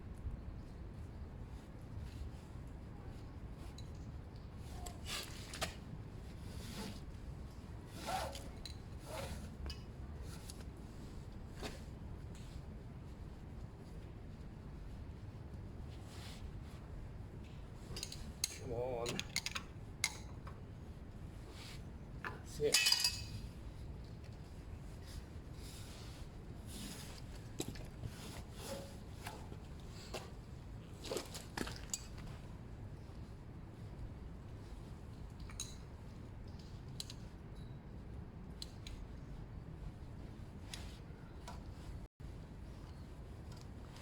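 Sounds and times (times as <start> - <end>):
rustling of material being handled: 20.7 - 35.3.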